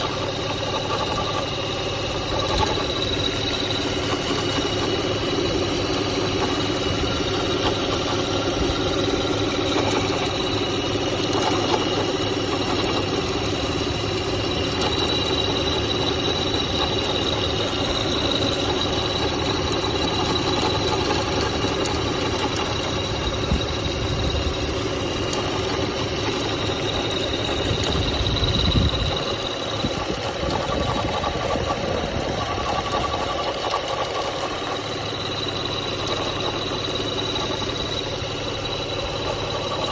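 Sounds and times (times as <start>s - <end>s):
car engine idling: 0.0s - 39.9s
high-pitched whine: 0.0s - 39.9s.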